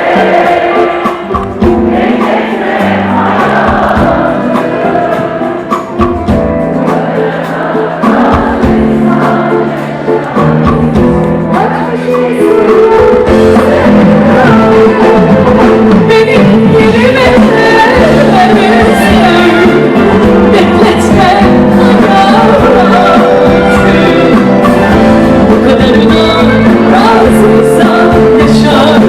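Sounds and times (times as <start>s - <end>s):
live band playing pop music: 0.0s - 29.0s
person singing: 6.9s - 29.0s.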